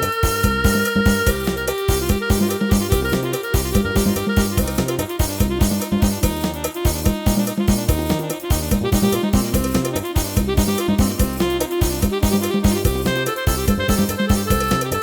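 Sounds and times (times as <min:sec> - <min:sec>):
keyboard melody with drum accompaniment: 0:00.0 - 0:15.0.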